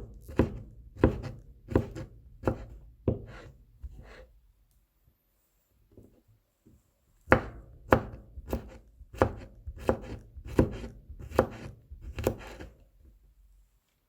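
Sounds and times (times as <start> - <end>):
knife chopping on cutting board: 0.0 - 4.2, 7.3 - 12.8.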